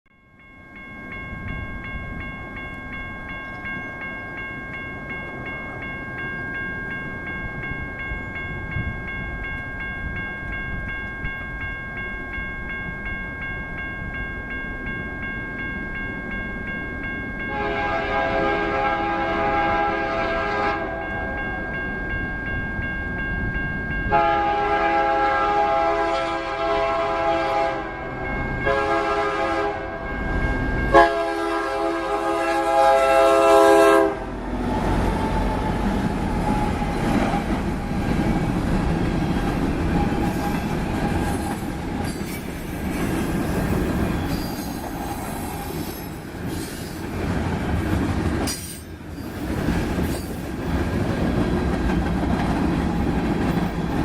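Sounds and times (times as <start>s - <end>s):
locomotive air horn blasts: 17.5s - 21.2s, 24.1s - 28.0s, 28.6s - 30.0s, 30.9s - 34.4s.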